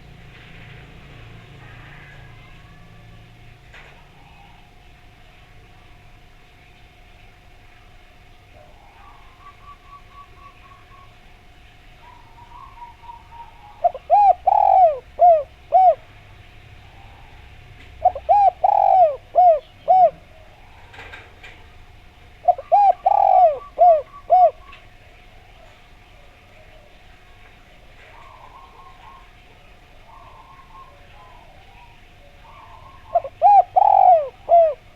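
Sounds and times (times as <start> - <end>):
dove cooing: 1.5 - 5.0, 8.5 - 11.3, 11.9 - 34.9.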